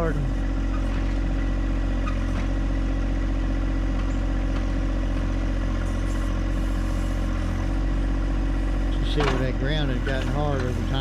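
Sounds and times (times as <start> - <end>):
tractor diesel engine running: 0.0 - 11.0
backhoe digging into soil: 8.8 - 11.0.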